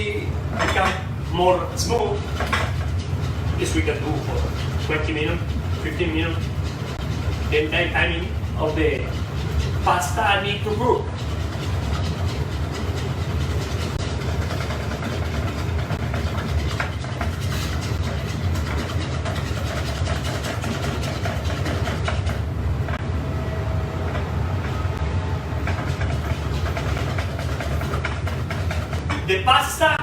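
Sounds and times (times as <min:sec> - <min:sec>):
kitchen equipment rumble: 0:00.0 - 0:30.0.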